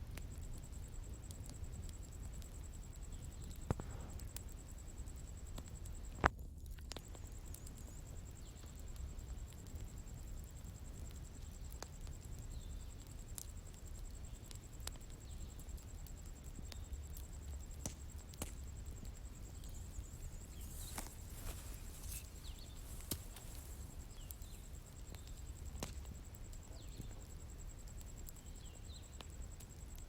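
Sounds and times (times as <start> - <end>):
bonfire crackling and popping: 0.0 - 30.0
low rumble of fire: 0.0 - 30.0
high insect drone: 16.8 - 29.8
faint bird chirps: 19.1 - 25.7, 26.6 - 27.4.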